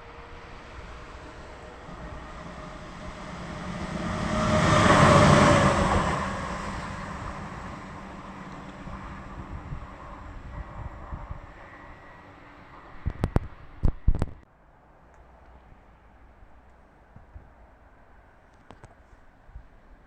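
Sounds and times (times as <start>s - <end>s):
vehicle passing by: 0.0s - 13.8s.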